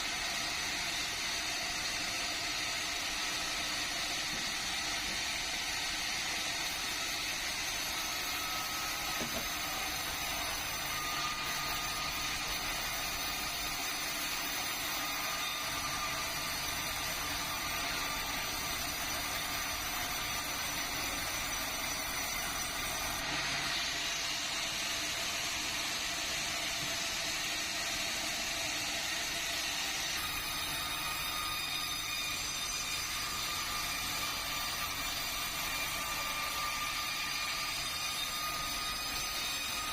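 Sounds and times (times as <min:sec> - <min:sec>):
sawmill saw whining: 0:00.0 - 0:39.9.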